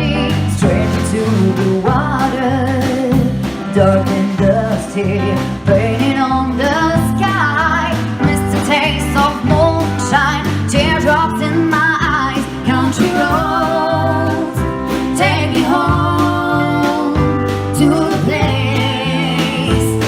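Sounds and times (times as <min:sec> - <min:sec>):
soul blues band playing live: 0:00.0 - 0:20.0
lead melody with vibrato: 0:11.1 - 0:20.0.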